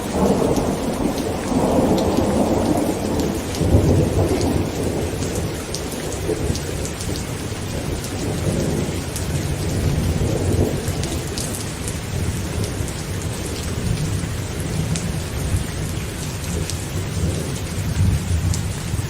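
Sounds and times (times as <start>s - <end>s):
heavy rain on a tent: 0.0s - 19.0s
rolling thunder: 0.0s - 19.0s.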